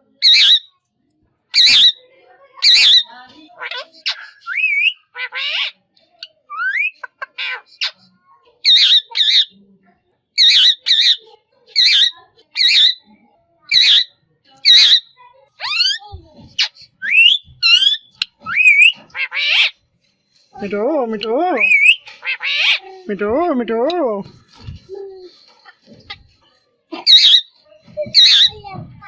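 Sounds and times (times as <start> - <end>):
parrot squawking harshly: 0.2 - 0.7, 1.6 - 2.0, 2.6 - 5.8, 8.6 - 9.5, 10.4 - 13.0, 13.7 - 16.0, 16.6 - 19.8, 21.6 - 22.9, 27.0 - 27.5, 28.1 - 28.6
parrot whistling and chirping: 0.2 - 0.7, 1.6 - 2.0, 2.6 - 3.1, 4.4 - 5.0, 6.5 - 7.0, 8.7 - 9.4, 10.4 - 11.2, 13.7 - 16.0, 16.6 - 19.7, 21.6 - 22.8, 27.0 - 28.6.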